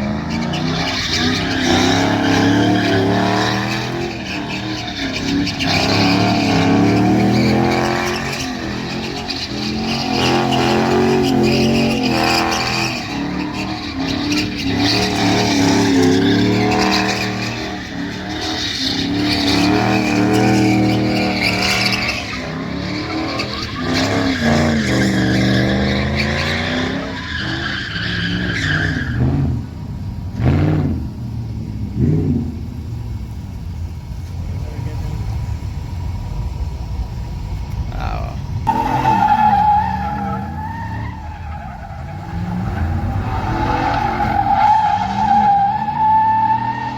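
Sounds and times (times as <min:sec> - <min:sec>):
tires squealing: 0:00.0 - 0:46.9
truck engine revving: 0:00.0 - 0:46.9.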